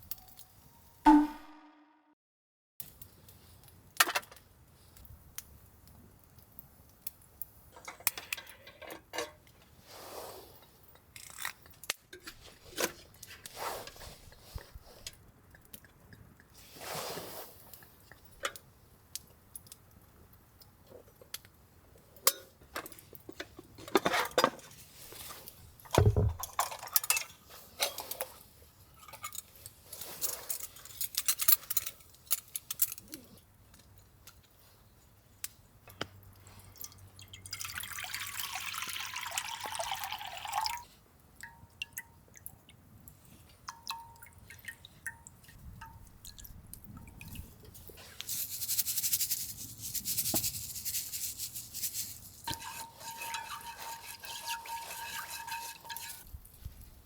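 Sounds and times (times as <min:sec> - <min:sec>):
pots and lids clinking: 0:25.9 - 0:28.2, 0:52.4 - 0:56.2
scraping and rustling: 0:47.8 - 0:57.0.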